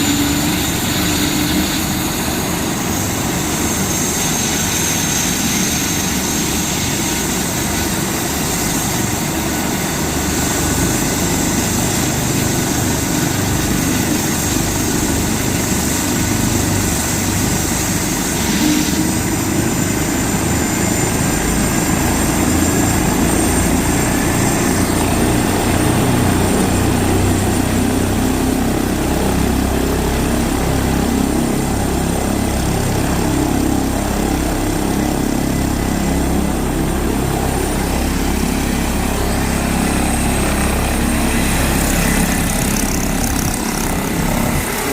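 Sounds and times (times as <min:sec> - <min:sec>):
helicopter engines whining: 0:00.0 - 0:44.9
rotor rumble: 0:08.1 - 0:44.9.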